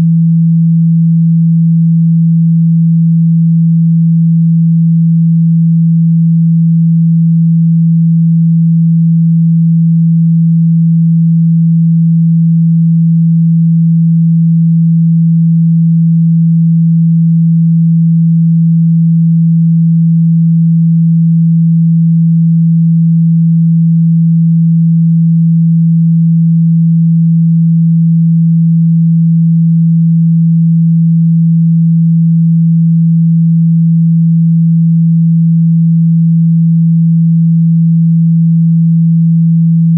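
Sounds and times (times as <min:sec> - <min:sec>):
steady sine tone: 0:00.0 - 0:39.9.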